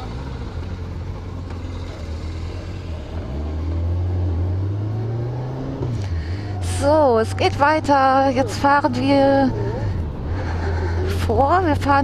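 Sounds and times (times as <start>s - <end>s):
motorcycle engine: 0.0s - 12.0s.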